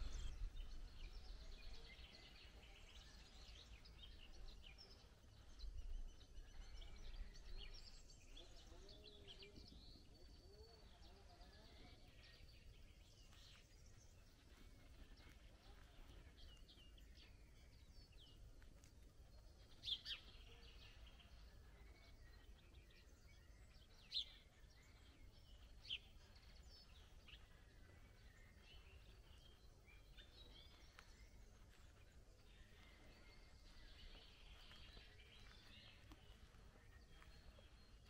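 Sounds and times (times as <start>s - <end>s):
faint low rumble: 0.0s - 8.8s, 12.8s - 38.0s
small birds chirping: 0.0s - 38.0s.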